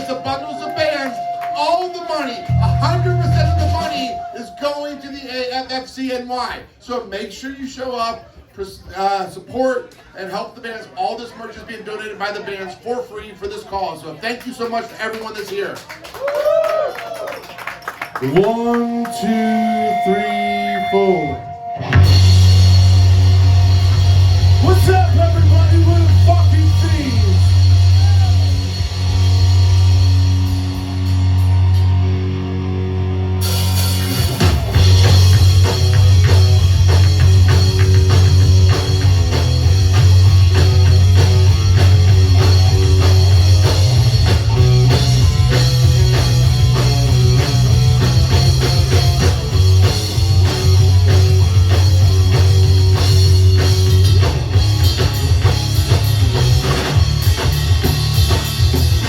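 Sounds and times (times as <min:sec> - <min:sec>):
punk rock band playing live: 0:00.0 - 0:05.0, 0:20.4 - 0:59.0
drums and cymbals: 0:00.0 - 0:05.1, 0:20.8 - 0:32.1, 0:33.4 - 0:59.0.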